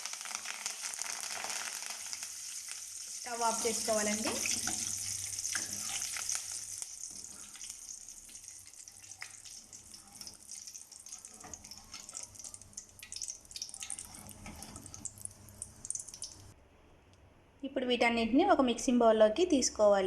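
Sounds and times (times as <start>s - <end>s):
hot oil sizzling: 0.0s - 16.6s
oil crackling and popping: 0.0s - 16.6s.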